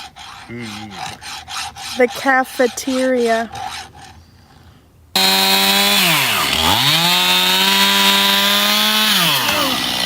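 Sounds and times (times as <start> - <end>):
chainsaw engine revving: 5.2 - 10.0.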